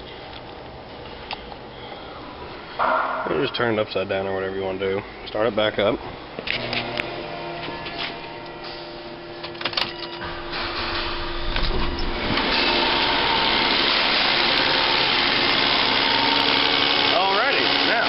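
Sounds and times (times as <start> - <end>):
misfiring car engine running: 10.6 - 17.8.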